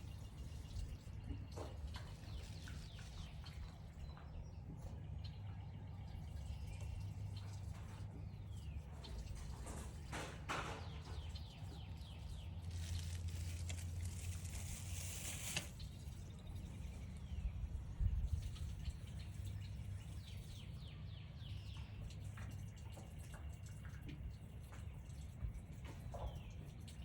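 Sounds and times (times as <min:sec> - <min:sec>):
songbirds calling: 0:00.0 - 0:27.0
soft rumble: 0:11.3 - 0:20.5.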